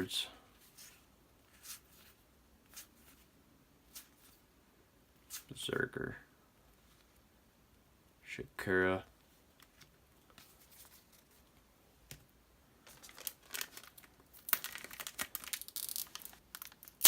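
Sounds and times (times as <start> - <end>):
wrapper crinkling: 12.8 - 17.0
wrapper tearing open: 12.9 - 17.0.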